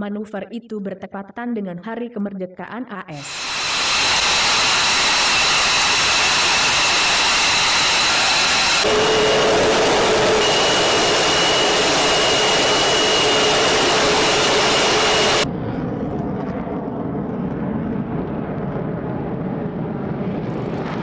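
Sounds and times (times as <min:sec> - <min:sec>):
high steady engine whines: 0:03.2 - 0:15.5
jet engine rushing: 0:03.2 - 0:19.6.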